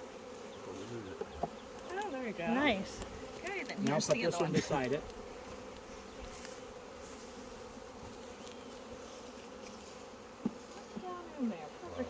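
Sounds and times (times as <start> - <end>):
honey bees buzzing: 0.0 - 12.0.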